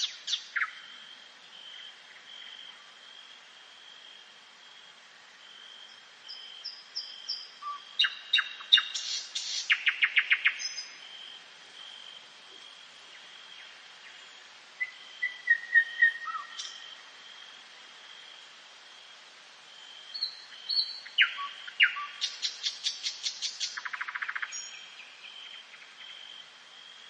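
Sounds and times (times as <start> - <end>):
songbird trilling: 20.2 - 24.8.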